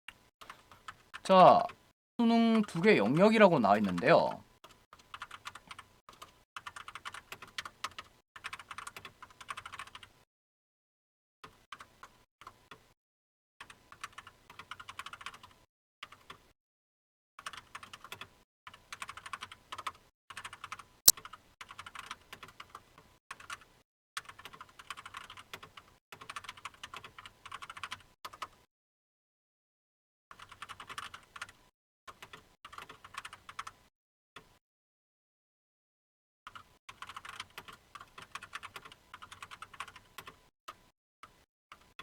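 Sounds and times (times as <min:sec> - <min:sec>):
typing on computer keyboard: 0:02.5 - 0:10.2, 0:13.6 - 0:16.4, 0:17.4 - 0:22.8, 0:23.4 - 0:28.6, 0:30.4 - 0:33.8, 0:36.5 - 0:40.4.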